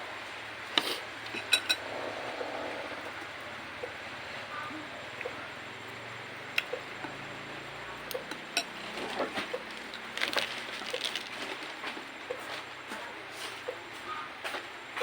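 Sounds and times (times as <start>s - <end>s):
spoon clinking against a bowl: 1.3s - 1.9s.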